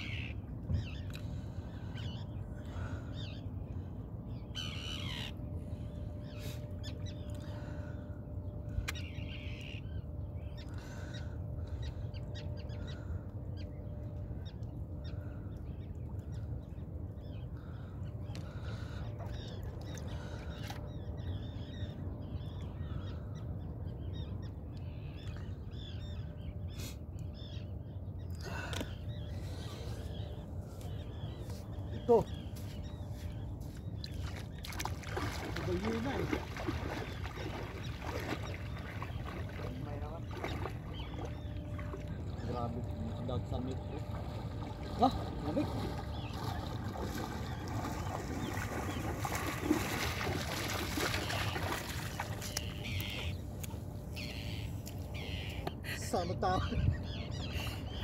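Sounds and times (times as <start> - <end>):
birds calling: 0.0 - 58.0
steady low rumble: 0.0 - 58.0.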